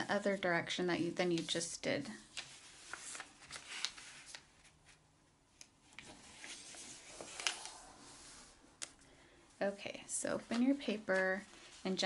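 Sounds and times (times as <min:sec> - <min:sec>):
paper rustling and crinkling: 0:02.3 - 0:05.0, 0:05.9 - 0:07.9.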